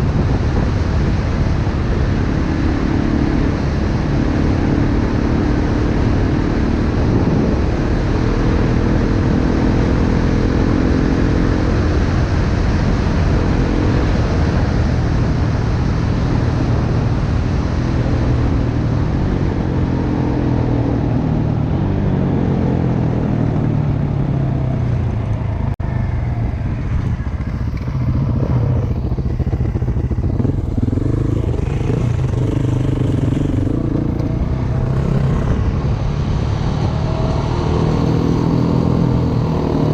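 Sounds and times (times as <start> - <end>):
wind noise: 0.0 - 39.9
dirt bike engine revving: 27.4 - 39.9.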